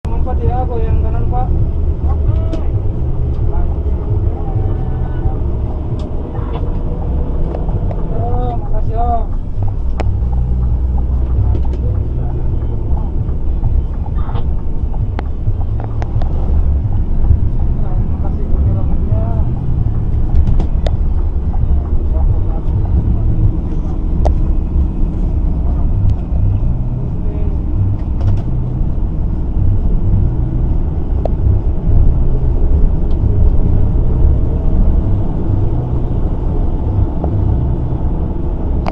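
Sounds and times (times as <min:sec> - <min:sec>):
truck diesel engine rumbling: 0:00.0 - 0:38.9.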